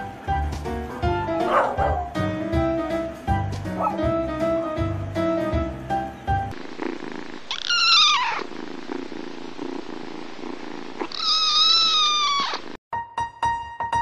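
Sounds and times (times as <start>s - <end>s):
piano music: 0.0s - 6.5s, 12.9s - 14.0s
soft purr: 6.4s - 12.8s
kitten meowing: 7.5s - 8.5s, 11.0s - 12.8s.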